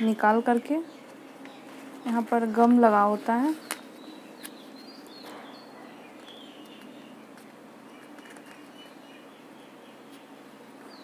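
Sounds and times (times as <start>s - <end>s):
low background hum: 0.0s - 11.0s
paper handling clicks: 6.2s - 8.9s.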